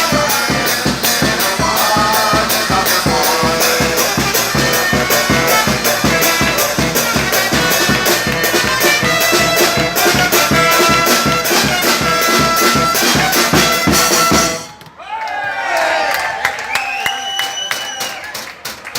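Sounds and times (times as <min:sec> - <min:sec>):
brass and percussion band playing: 0:00.0 - 0:14.8.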